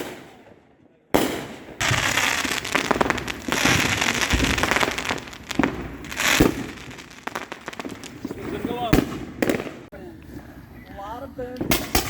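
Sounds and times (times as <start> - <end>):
fireworks crackling pops: 1.2 - 9.9, 11.5 - 12.0
fireworks deep booms: 1.2 - 9.9.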